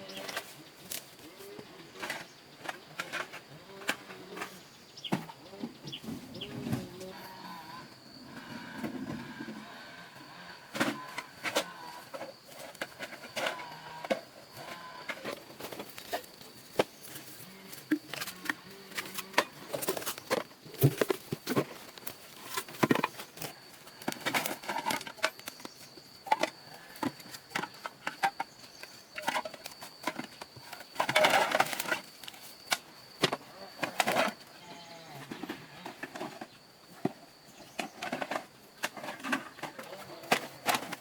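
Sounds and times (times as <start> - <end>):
clicks and clatter of hard objects: 10.7 - 34.4, 35.3 - 41.0.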